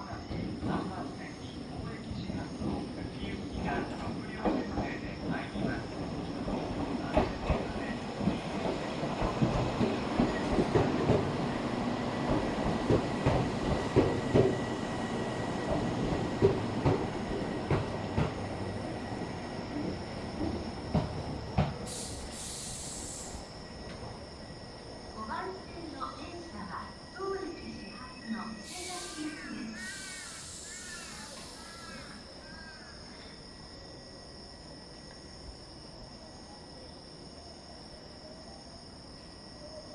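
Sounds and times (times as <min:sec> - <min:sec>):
train rumble: 0:00.0 - 0:32.2
train wheels knocking on rail joints: 0:06.4 - 0:11.5, 0:12.2 - 0:14.7, 0:15.6 - 0:18.5, 0:19.8 - 0:22.0
short hiss: 0:21.9 - 0:23.5.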